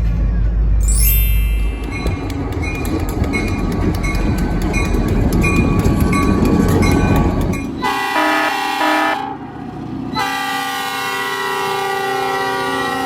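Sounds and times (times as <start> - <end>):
diesel locomotives rumbling: 0.0 - 13.0
locomotive air horn chord: 7.8 - 9.4, 10.2 - 13.0.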